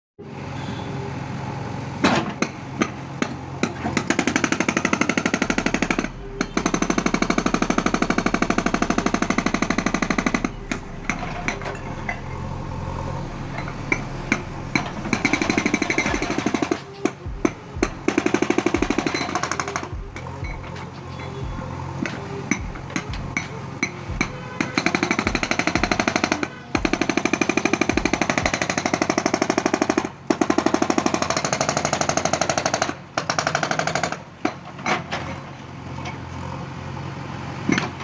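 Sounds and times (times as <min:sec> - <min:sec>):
hydraulic breaker hammering: 0:02.0 - 0:12.3, 0:13.5 - 0:35.1
machine engine running: 0:03.8 - 0:20.8, 0:21.4 - 0:32.2.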